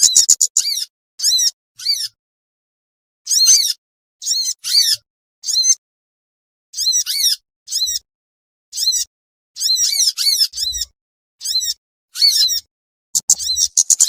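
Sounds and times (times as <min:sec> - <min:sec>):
harsh scratchy bird calls: 0:00.0 - 0:02.2, 0:03.3 - 0:05.8, 0:06.8 - 0:08.0, 0:08.7 - 0:14.0.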